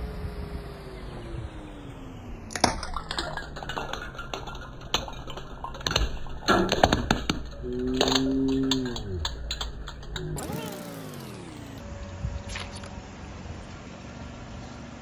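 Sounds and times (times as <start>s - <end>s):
car engine rolling slowly: 0.0s - 15.0s.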